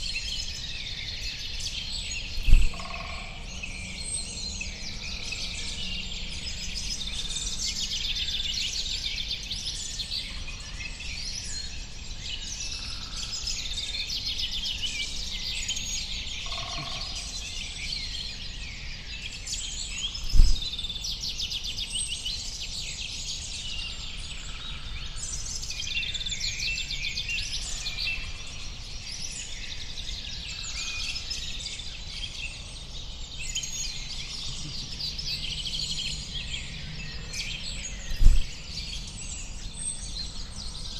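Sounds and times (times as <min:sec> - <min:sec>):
small birds chirping and trilling: 0:00.0 - 0:40.9
short low thump: 0:02.4 - 0:02.8, 0:20.3 - 0:20.7, 0:38.1 - 0:38.6
low rumble: 0:02.4 - 0:03.6.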